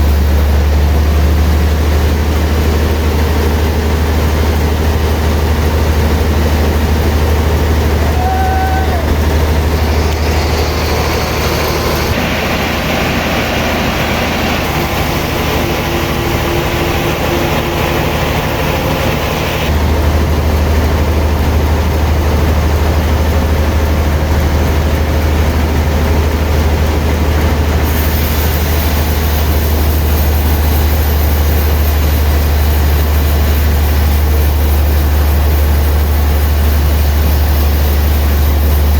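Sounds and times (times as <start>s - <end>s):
sawmill machinery humming: 0.0s - 38.9s
high hiss: 8.1s - 19.7s, 27.8s - 38.9s.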